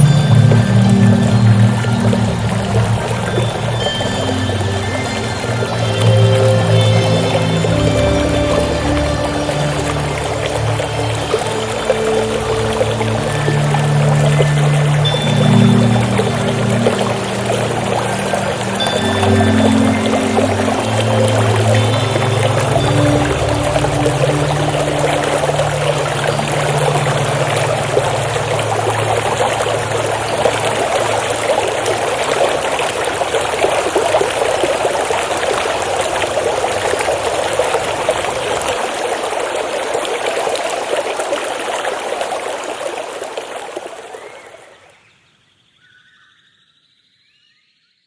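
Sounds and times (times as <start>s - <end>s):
low held music tone: 0.0s - 39.1s
stream water babbling: 0.0s - 45.1s.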